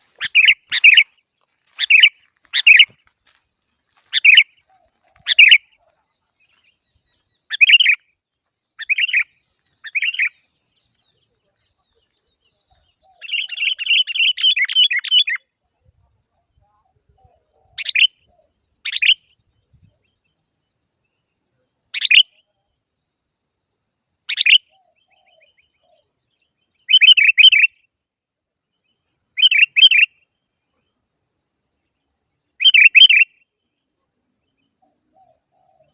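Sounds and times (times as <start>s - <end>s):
bird rapid chattering: 0.0s - 1.1s, 1.7s - 2.9s, 4.1s - 6.0s.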